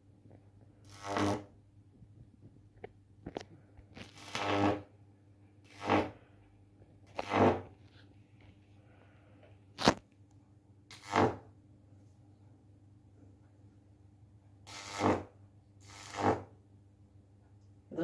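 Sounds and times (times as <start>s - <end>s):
high-voltage arcs buzzing: 0.9s - 1.5s, 4.0s - 4.9s, 5.6s - 6.2s, 7.1s - 7.7s, 9.8s - 10.0s, 10.9s - 11.5s, 14.7s - 16.5s.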